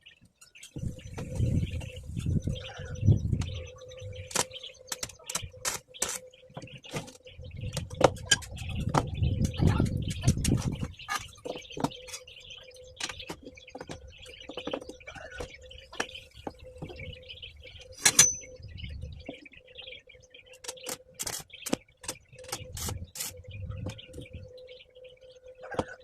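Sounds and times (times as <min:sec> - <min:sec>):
ringing metal clank: 0:18.0 - 0:18.6.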